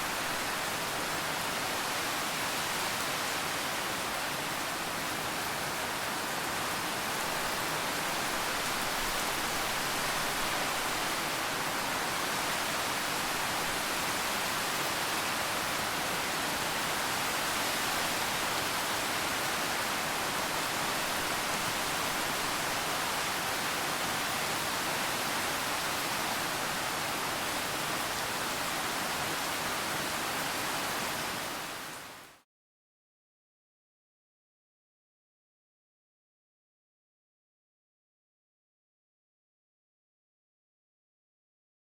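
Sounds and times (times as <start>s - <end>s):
steady rain hiss: 0.0s - 32.4s.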